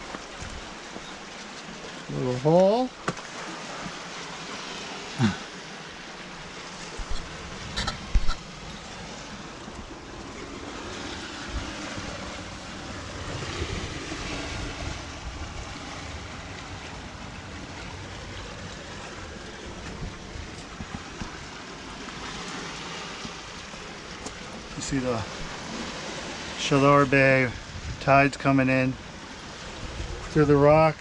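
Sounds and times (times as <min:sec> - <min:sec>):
sea waves washing over rocks: 0:00.0 - 0:31.0
wind buffeting microphone: 0:06.8 - 0:21.7, 0:24.7 - 0:28.4, 0:29.4 - 0:31.0.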